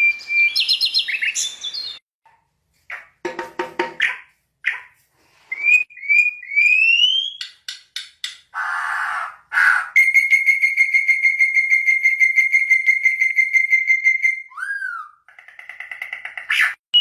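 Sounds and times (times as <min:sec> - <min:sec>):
bird singing trill: 0:00.0 - 0:02.0.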